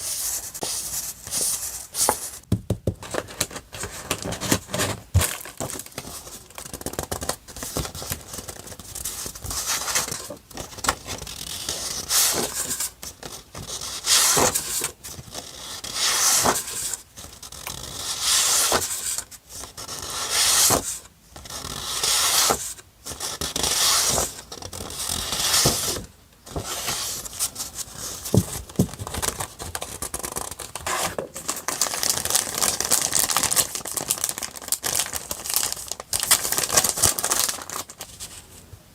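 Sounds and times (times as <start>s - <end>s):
paper rustling: 3.0s - 11.3s, 25.0s - 38.6s.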